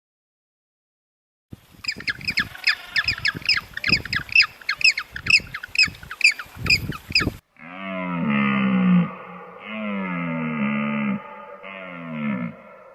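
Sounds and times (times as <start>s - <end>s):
bird squawking calls: 1.8s - 7.4s
animal long low call: 7.6s - 12.9s.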